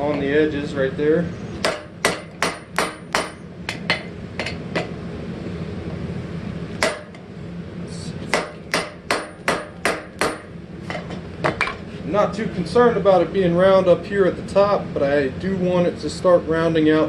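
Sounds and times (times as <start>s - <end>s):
hammer striking hot steel on anvil: 1.6s - 5.0s, 6.8s - 7.2s, 8.3s - 10.5s.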